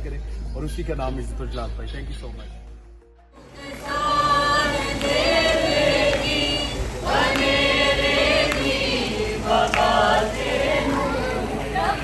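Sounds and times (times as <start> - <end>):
group singing a worship song: 3.4 - 12.0.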